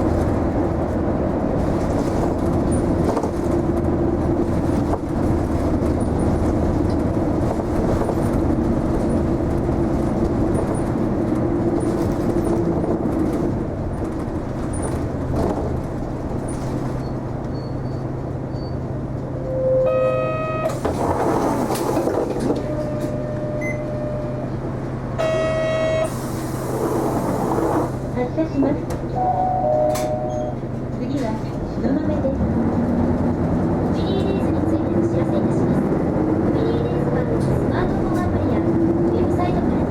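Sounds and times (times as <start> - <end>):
bus engine running: 0.0 - 39.9
pneumatic door air hiss: 26.1 - 27.8.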